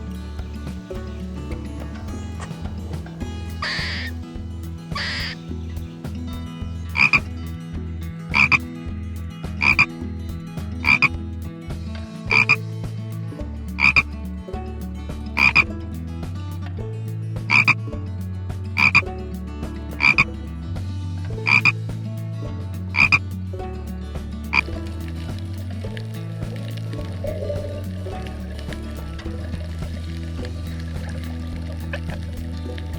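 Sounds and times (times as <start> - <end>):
frog croaking: 3.6 - 4.1, 5.0 - 5.4, 7.0 - 7.2, 9.6 - 9.9, 10.9 - 11.1, 12.3 - 12.5, 17.5 - 17.8, 18.8 - 19.0, 23.0 - 23.2.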